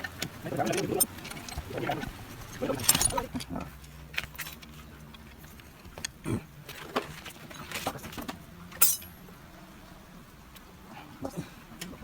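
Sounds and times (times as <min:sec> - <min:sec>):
metallic clinks of hand tools: 0:08.8 - 0:09.2.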